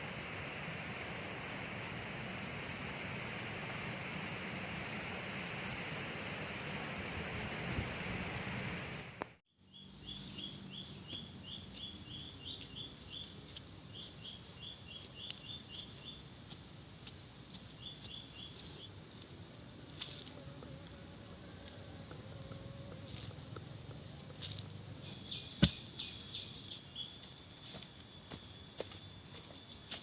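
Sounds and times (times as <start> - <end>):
steady rushing hiss: 0.0 - 9.2
bird chirping: 9.5 - 16.2, 17.8 - 19.0, 25.0 - 29.7.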